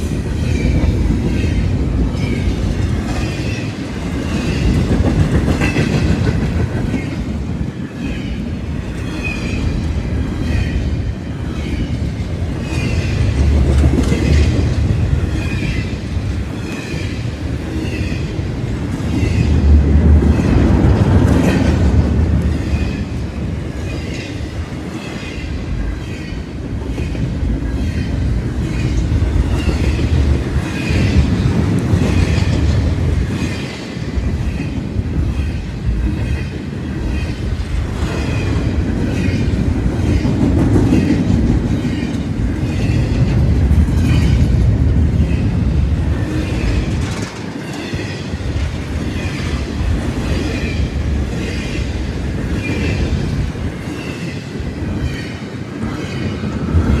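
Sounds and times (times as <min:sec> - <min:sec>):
train rumbling past: 0:00.0 - 0:57.0
wheels clacking over rail joints: 0:37.1 - 0:57.0.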